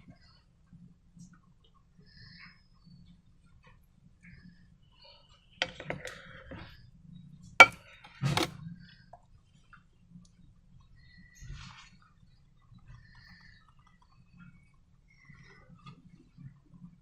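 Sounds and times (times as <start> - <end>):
hard objects clicking and tapping: 5.6 - 6.6, 7.6 - 8.5.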